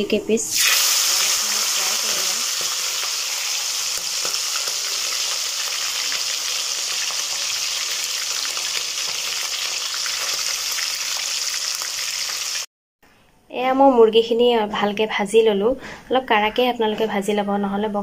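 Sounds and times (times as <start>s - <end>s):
chicken frying in oil: 0.5s - 12.7s.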